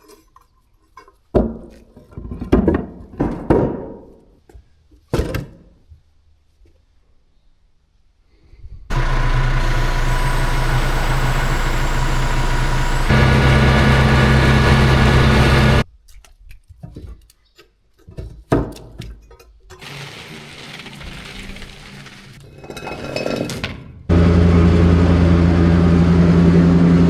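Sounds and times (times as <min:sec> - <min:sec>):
engine running: 0:08.9 - 0:15.8, 0:24.1 - 0:27.0.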